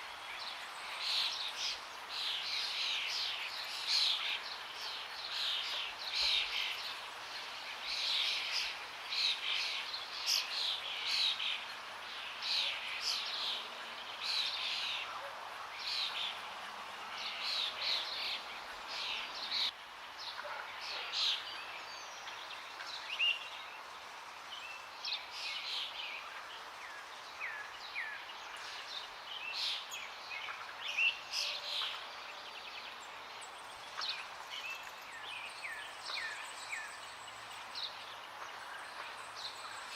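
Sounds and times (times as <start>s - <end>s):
birds chirping and singing: 24.6s - 39.9s.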